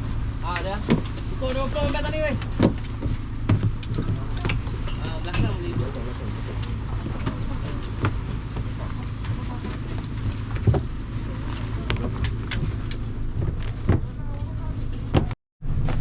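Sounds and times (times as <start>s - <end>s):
boat engine humming: 0.0s - 15.8s
sharp knocks: 0.6s - 6.0s.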